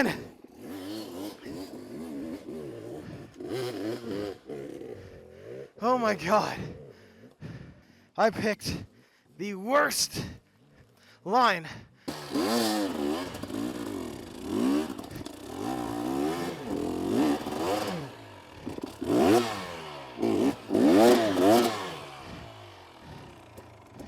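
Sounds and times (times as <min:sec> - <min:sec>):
dirt bike engine revving: 0:00.0 - 0:07.0, 0:12.0 - 0:24.0.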